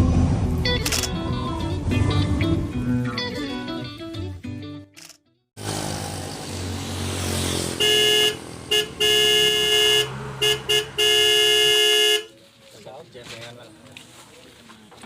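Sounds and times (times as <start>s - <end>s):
vehicle horn honking: 7.7s - 12.3s.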